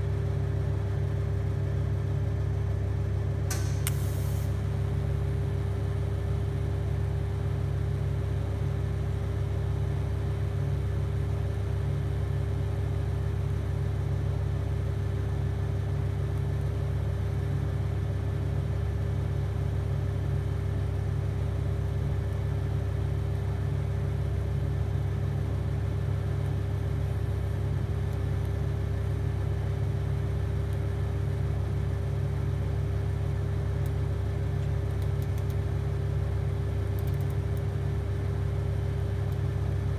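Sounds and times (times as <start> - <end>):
welding arc buzzing: 3.5 - 6.0.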